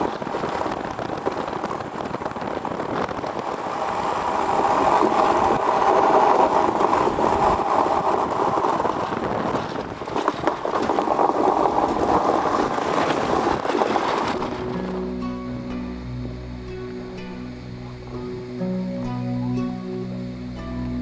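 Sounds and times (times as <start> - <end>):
iceboat runners rushing over ice: 0.0 - 15.1.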